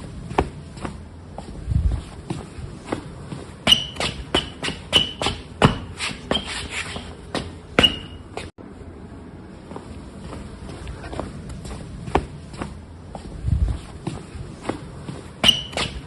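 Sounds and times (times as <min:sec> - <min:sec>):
footsteps: 0:00.3 - 0:08.5
short high squeak: 0:03.7 - 0:05.4, 0:06.0 - 0:07.1, 0:07.8 - 0:08.4, 0:15.4 - 0:16.0.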